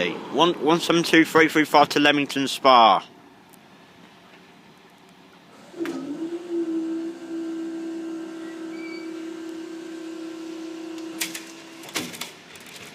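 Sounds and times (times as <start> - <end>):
electric motor hum: 5.5 - 11.8.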